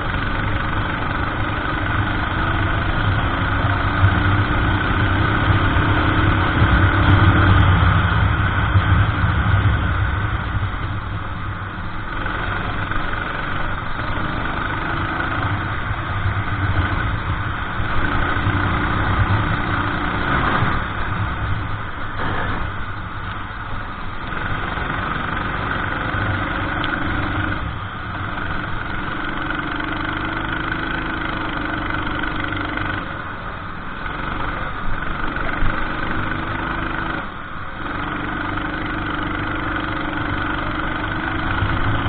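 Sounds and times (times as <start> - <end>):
kart engine revving: 0.0 - 42.0.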